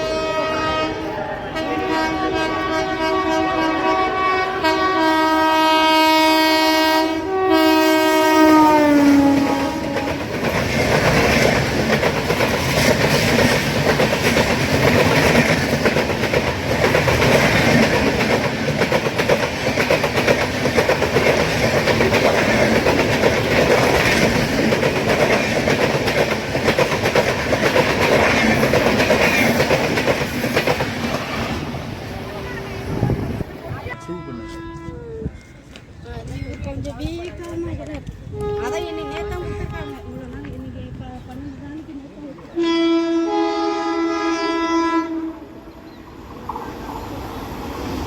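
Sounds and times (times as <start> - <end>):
multi-tone train horn: 0.0 - 10.4, 32.4 - 35.4, 38.3 - 40.3, 42.5 - 45.7
train passing at speed: 0.0 - 48.0.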